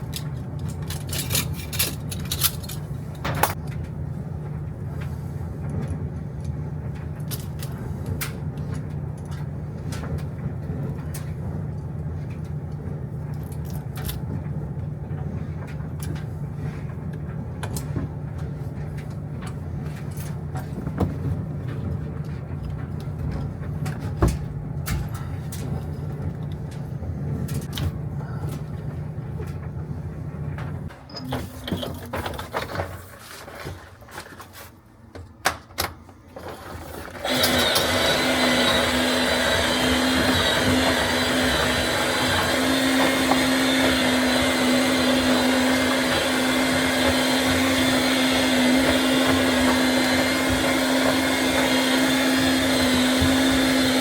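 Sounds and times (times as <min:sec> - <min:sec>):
steady low hum: 0:00.0 - 0:32.7.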